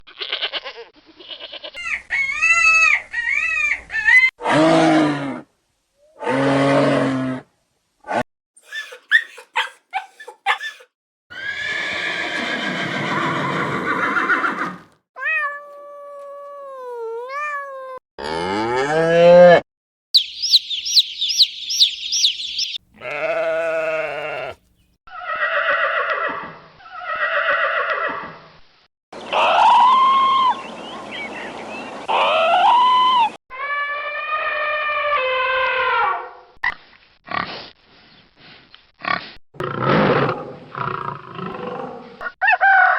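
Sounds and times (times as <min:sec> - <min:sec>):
animal bleating: 0:00.1 - 0:01.8, 0:22.9 - 0:25.4
cow mooing: 0:23.0 - 0:24.6.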